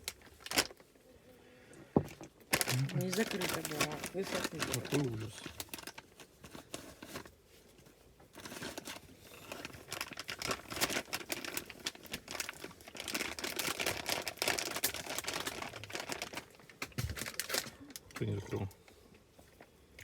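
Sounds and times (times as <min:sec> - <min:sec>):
plastic packaging crinkling: 0:00.0 - 0:00.9, 0:02.2 - 0:18.7.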